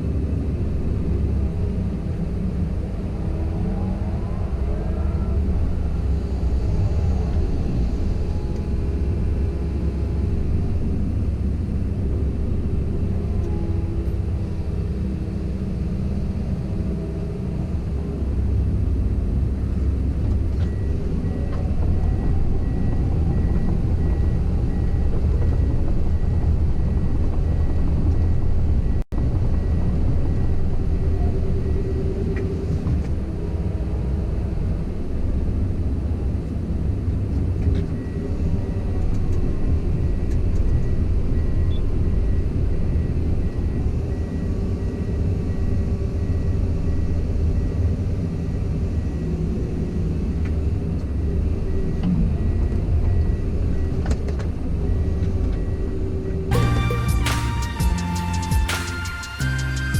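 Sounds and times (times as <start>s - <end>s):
excavator diesel engine rumbling: 51.2s - 59.9s.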